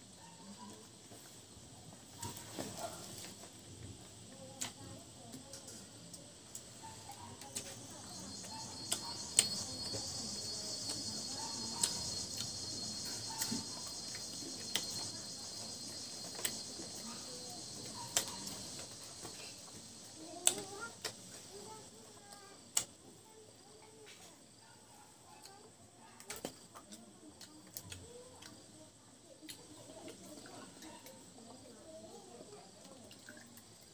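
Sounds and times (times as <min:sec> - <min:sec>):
insect trilling: 0:06.8 - 0:21.8.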